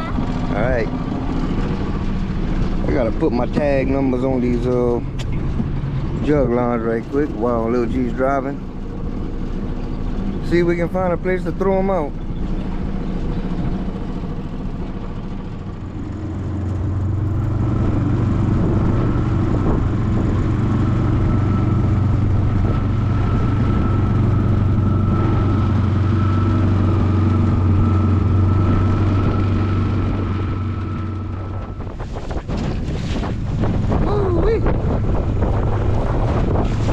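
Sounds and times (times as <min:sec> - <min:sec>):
small boat motor droning: 0:00.0 - 0:36.9.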